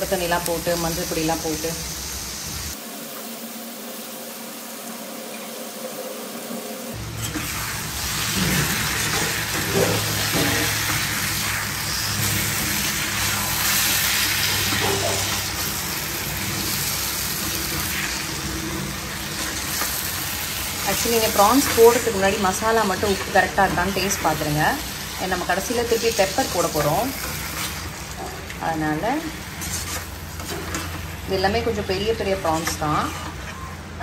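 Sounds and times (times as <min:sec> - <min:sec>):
prawns sizzling: 0:00.0 - 0:34.0
spoon scraping pan: 0:29.4 - 0:31.1, 0:31.9 - 0:33.8.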